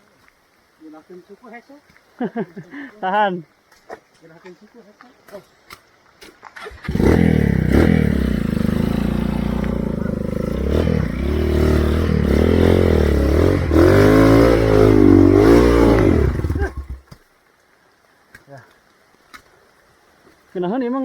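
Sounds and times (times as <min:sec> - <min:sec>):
motorcycle engine revving: 0:06.6 - 0:17.0.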